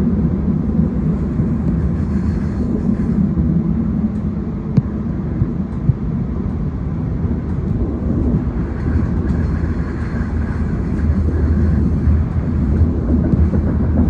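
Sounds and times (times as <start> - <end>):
train rumbling inside carriage: 0.0 - 14.0.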